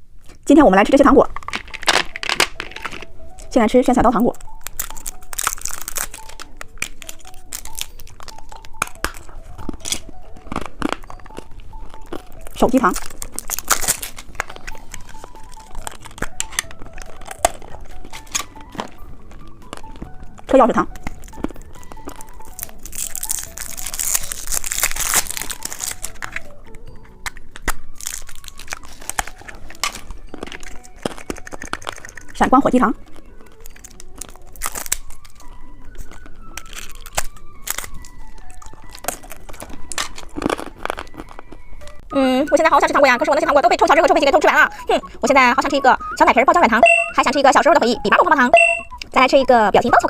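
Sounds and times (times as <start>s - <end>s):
plastic wrapper crinkling: 1.3s - 3.5s, 4.3s - 32.4s, 33.0s - 42.0s.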